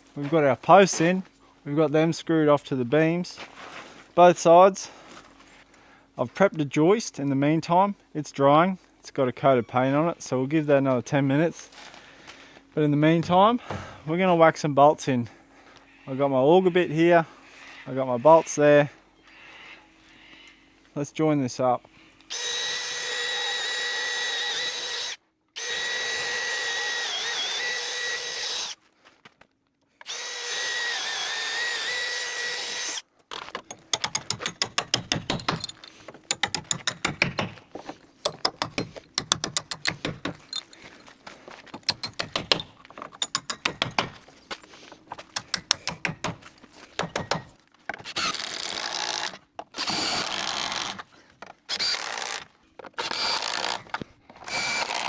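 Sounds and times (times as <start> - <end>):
power drill motor whine: 22.2 - 28.8, 30.0 - 33.0, 48.1 - 51.0, 51.7 - 55.0
rapid hammering clatter: 33.7 - 40.8, 41.7 - 44.2, 45.2 - 47.6.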